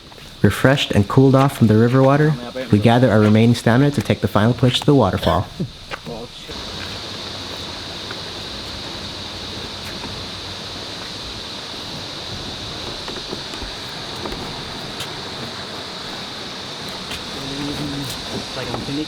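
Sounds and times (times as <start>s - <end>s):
high-pitched hiss: 0.0s - 19.0s
river water rushing: 6.1s - 19.0s.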